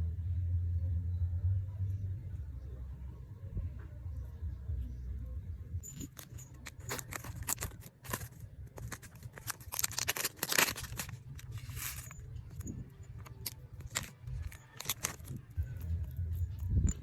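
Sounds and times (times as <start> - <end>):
low steady hum: 0.0 - 17.0
packaging crinkling: 6.0 - 15.8.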